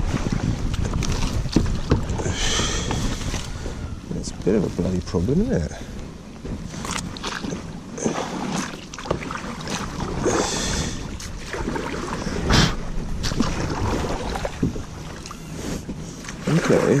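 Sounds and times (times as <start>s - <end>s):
paddle knocking on canoe hull: 0.2s - 3.3s
water splashing: 6.6s - 17.0s.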